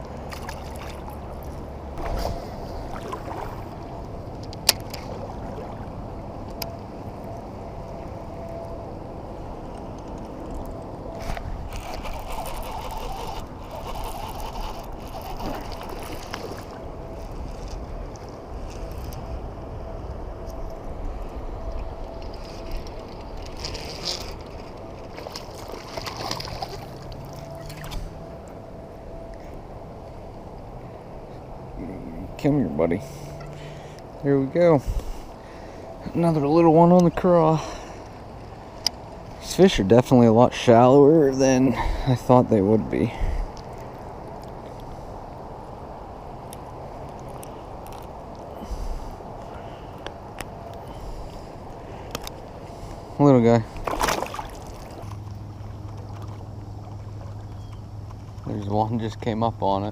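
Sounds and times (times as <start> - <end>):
water around kayak hull: 0.0 - 59.9
water splashing: 0.2 - 4.0, 4.6 - 6.2, 11.2 - 16.9, 22.3 - 28.2, 53.6 - 57.6.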